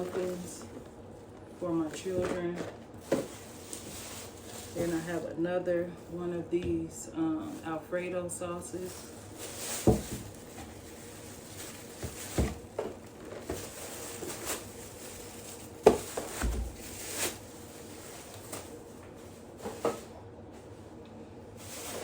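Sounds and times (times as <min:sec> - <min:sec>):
plastic bags rustling: 0:00.0 - 0:22.0
items knocking on hard surface: 0:09.8 - 0:10.7, 0:12.0 - 0:13.8, 0:15.8 - 0:16.8.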